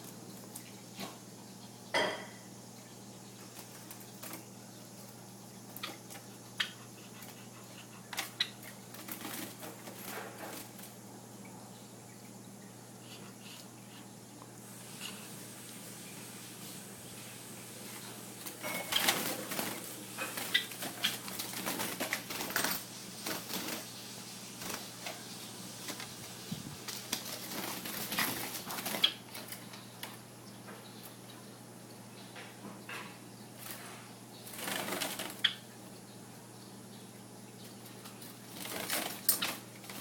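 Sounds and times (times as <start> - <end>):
bird fluttering and scratching: 3.5 - 11.0, 17.8 - 30.2, 33.6 - 35.5, 37.8 - 40.0.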